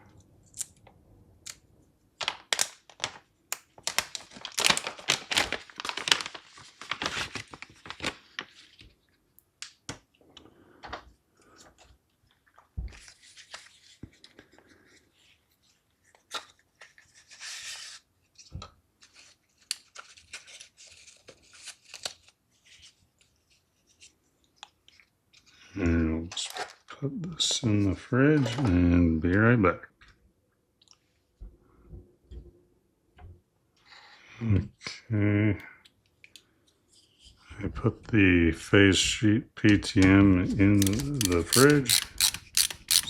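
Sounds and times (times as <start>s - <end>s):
packaging crinkling and tearing: 2.2s - 8.8s, 40.8s - 43.0s.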